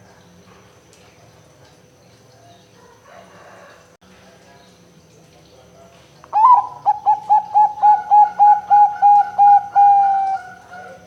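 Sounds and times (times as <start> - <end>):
dove cooing: 6.4 - 11.0.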